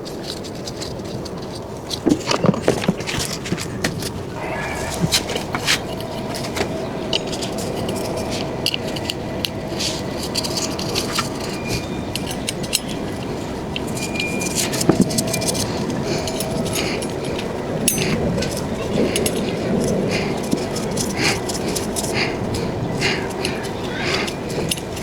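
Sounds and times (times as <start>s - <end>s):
steady background noise: 0.0s - 25.0s
metal tools clinking and scraping: 4.4s - 25.0s.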